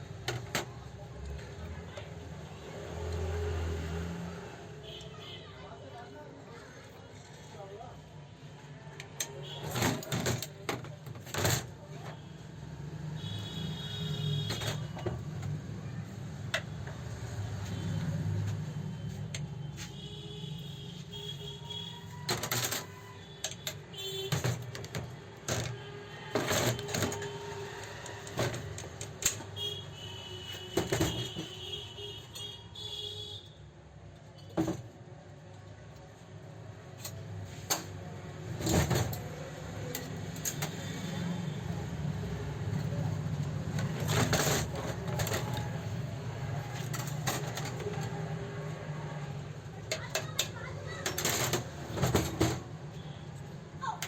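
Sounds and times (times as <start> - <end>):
metallic clicks and clatter of tools: 38.6 - 40.9, 49.8 - 53.0.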